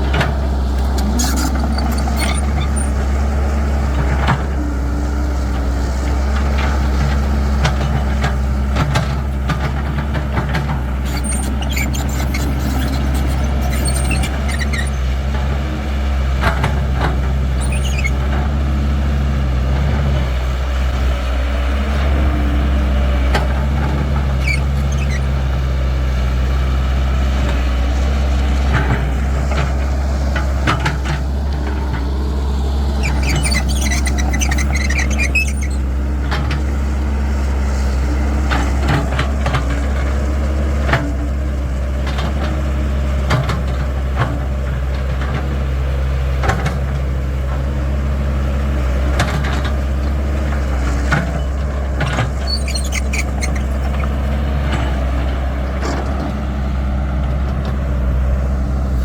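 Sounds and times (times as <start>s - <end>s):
excavator diesel engine running: 0.0s - 59.0s
high squeal: 0.8s - 4.0s, 11.0s - 15.1s, 17.6s - 18.2s, 24.3s - 25.4s, 32.8s - 36.0s, 52.3s - 54.1s.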